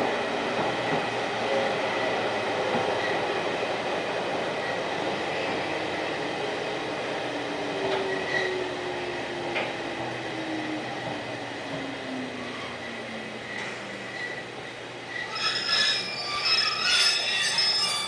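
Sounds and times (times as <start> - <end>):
train rolling noise: 0.0 - 18.0.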